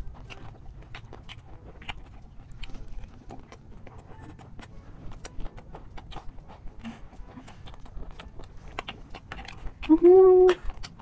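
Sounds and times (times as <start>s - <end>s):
crunchy snack chewing: 0.0s - 11.0s.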